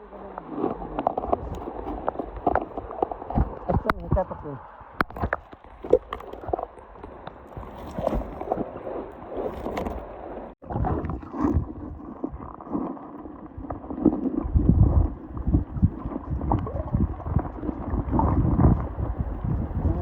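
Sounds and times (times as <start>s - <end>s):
water lapping and splashing: 0.0s - 20.0s
wind buffeting microphone: 7.4s - 12.6s, 13.5s - 20.0s.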